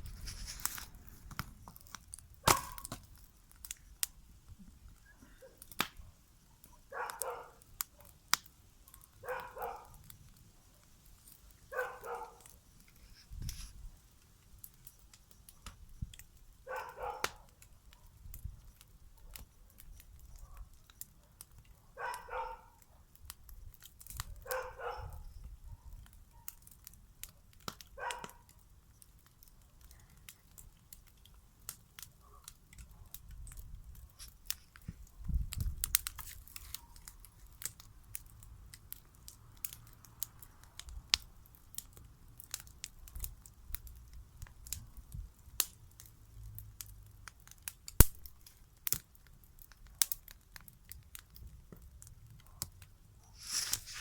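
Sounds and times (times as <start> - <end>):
sharp snaps and crackles: 0.0 - 54.0
dog barking: 2.4 - 2.9, 6.6 - 8.1, 8.9 - 10.0, 11.7 - 12.5, 16.7 - 18.1, 20.4 - 23.1, 24.4 - 26.6, 28.0 - 28.5, 32.2 - 33.1.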